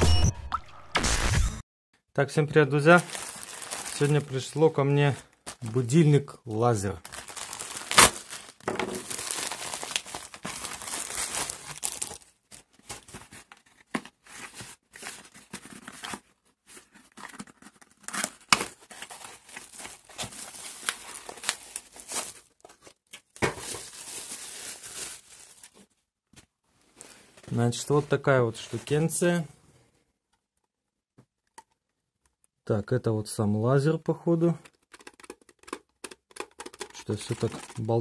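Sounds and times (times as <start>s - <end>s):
packaging crinkling and rustling: 2.8s - 26.0s, 34.6s - 38.0s.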